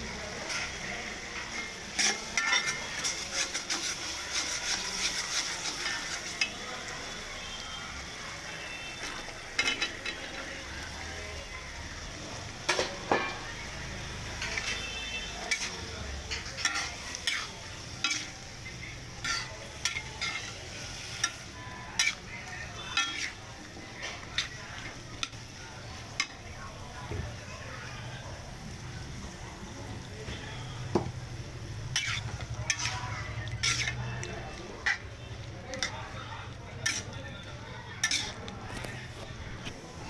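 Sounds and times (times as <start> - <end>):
vegetables sizzling in a pan: 0.0 - 40.0
spatula scraping a pan: 0.3 - 6.7, 14.2 - 25.5, 31.8 - 36.2, 36.8 - 37.2, 37.9 - 39.8.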